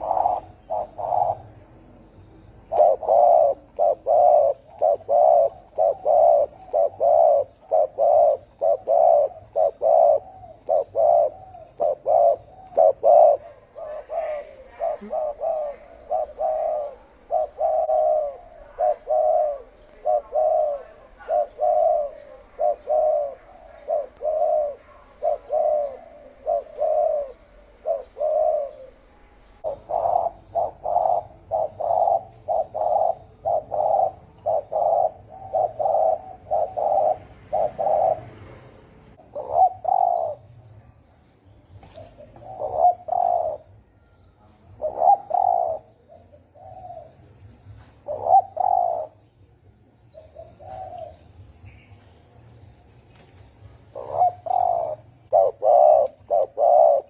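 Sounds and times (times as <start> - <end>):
dove cooing: 0.0 - 40.5, 41.8 - 51.5, 52.7 - 57.0.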